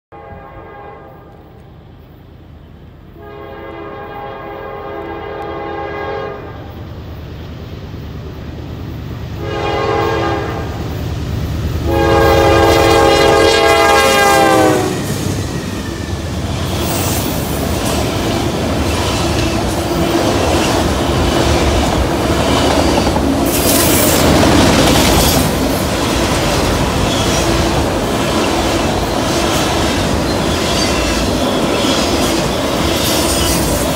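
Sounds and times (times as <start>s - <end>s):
locomotive air horn blasts: 0.1s - 1.3s, 3.2s - 6.7s, 9.4s - 10.8s, 11.8s - 15.1s
freight train wheels rumbling: 0.2s - 33.9s.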